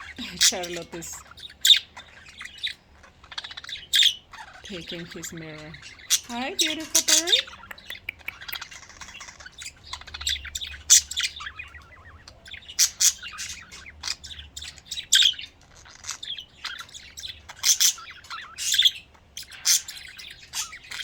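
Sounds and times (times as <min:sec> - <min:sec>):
budgerigars chirping and warbling: 0:00.0 - 0:21.0.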